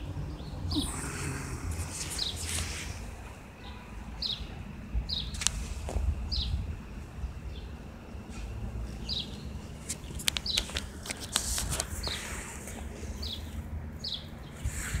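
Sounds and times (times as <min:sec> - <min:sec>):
steady low rumble: 0:00.0 - 0:10.2
bird chirping: 0:00.3 - 0:02.6
sharp clicks and rustles: 0:09.8 - 0:12.8.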